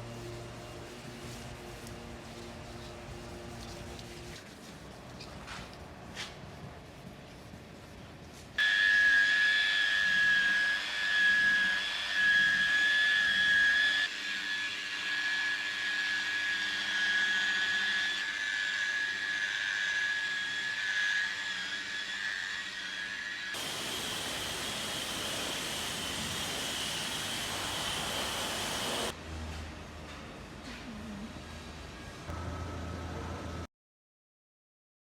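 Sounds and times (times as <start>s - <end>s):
compressed air hissing: 23.6s - 29.1s.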